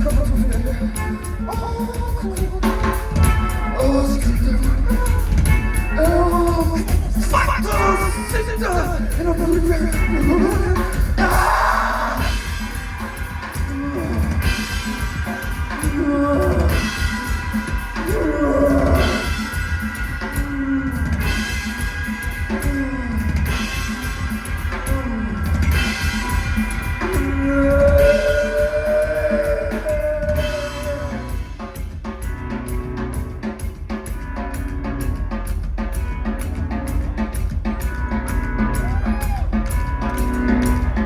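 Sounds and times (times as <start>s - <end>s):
person singing: 0.0s - 12.6s, 13.5s - 19.6s, 20.2s - 31.5s
rock band playing: 0.0s - 41.0s.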